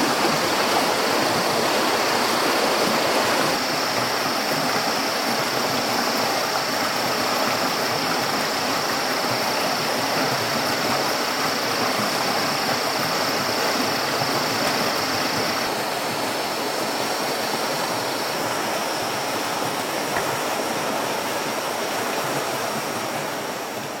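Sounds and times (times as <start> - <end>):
steady rushing noise: 0.0 - 3.9.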